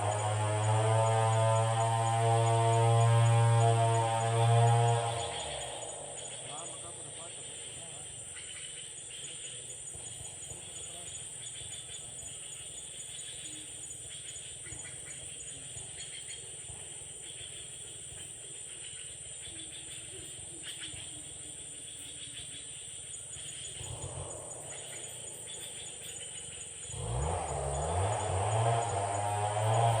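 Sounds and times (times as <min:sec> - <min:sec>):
insect drone: 0:00.0 - 0:30.0
bird chirps: 0:04.9 - 0:29.9.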